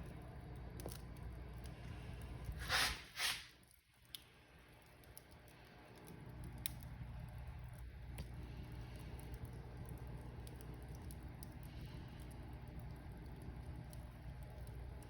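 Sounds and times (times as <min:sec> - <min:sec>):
wood fire crackling: 0:00.0 - 0:15.0
sharp pops from fire: 0:02.4 - 0:08.4.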